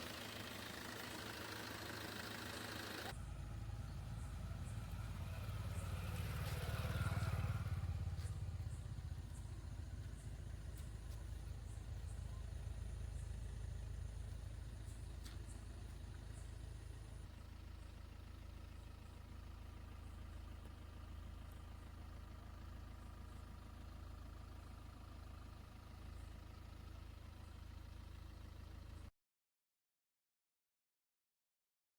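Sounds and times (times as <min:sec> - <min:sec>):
vehicle engine idling: 0:00.0 - 0:29.1.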